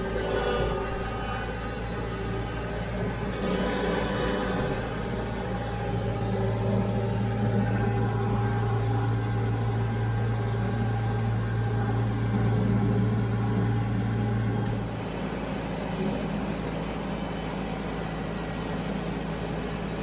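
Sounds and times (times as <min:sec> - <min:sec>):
tractor engine humming: 0:00.0 - 0:14.7.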